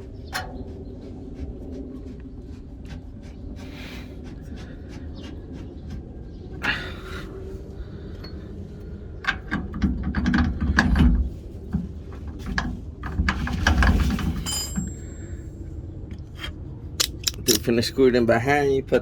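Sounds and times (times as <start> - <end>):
metal tools clicking and clanking: 13.6 - 15.4, 17.0 - 17.7.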